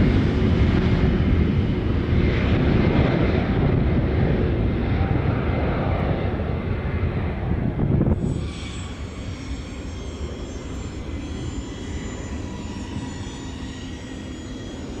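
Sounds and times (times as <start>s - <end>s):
airliner engines rumbling: 0.0s - 15.0s
high thin whining tones: 8.2s - 15.0s.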